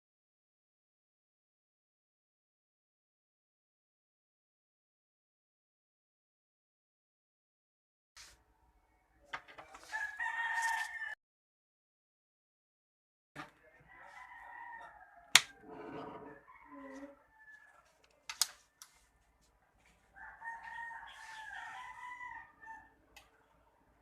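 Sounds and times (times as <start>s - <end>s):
rooster crowing: 9.8s - 11.2s, 13.8s - 17.9s, 20.1s - 23.0s.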